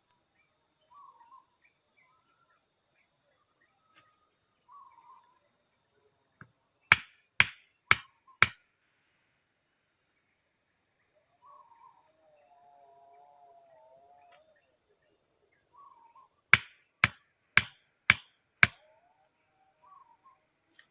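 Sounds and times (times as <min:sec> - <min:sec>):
forest insects droning: 0:00.0 - 0:20.9
sharp strikes: 0:06.9 - 0:08.6, 0:16.6 - 0:18.8.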